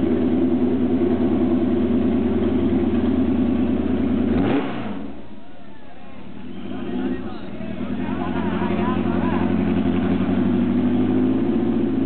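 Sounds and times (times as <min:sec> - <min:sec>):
racing engine running and winding down: 0:06.8 - 0:12.0.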